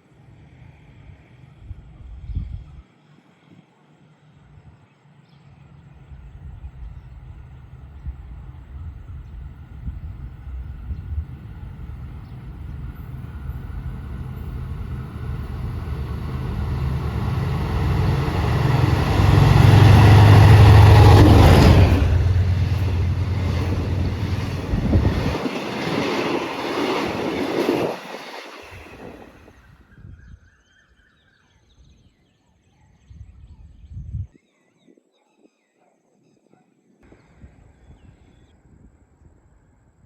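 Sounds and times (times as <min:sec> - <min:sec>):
locomotive engine drone: 0:05.9 - 0:29.4
train cars clattering over rails: 0:06.8 - 0:29.5.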